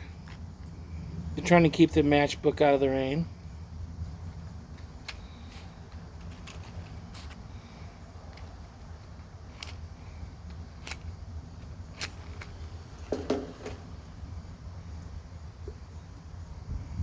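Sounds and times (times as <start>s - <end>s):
matches striking: 9.5s - 12.6s.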